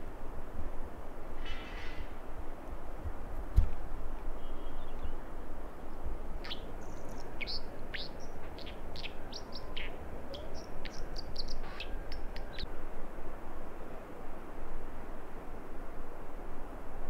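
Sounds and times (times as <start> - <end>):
small bird sharp high chirps: 6.4 - 12.7.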